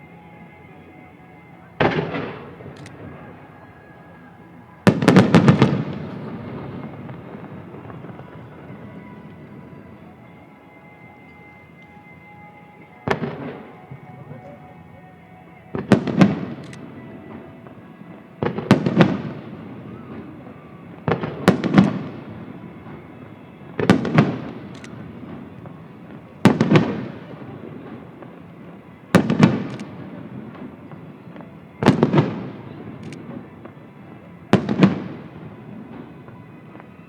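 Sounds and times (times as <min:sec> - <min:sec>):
firework shells bursting: 0:04.8 - 0:37.0.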